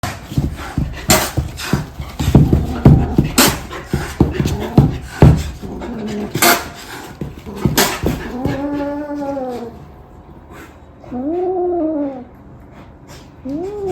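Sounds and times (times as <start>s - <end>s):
sharp knocks and thumps: 0.0s - 8.8s
dog scuffling and breathing: 0.0s - 10.8s.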